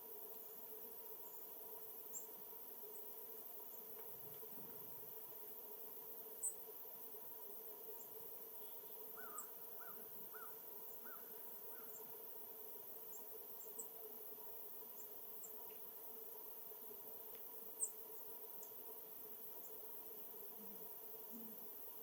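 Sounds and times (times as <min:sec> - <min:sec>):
distant bird calling: 0:09.2 - 0:12.0
faint high ticks: 0:17.2 - 0:17.5.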